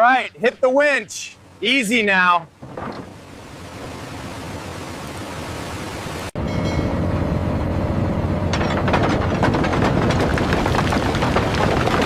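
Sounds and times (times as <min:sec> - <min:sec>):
rapid clattering: 0:08.5 - 0:12.0.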